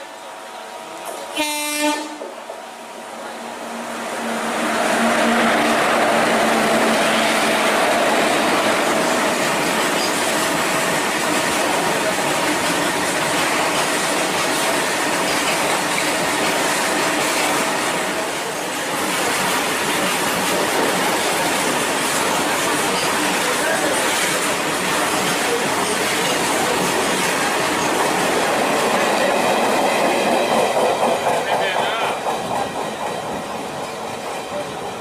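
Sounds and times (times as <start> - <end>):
locomotives passing at high speed: 3.3 - 9.7.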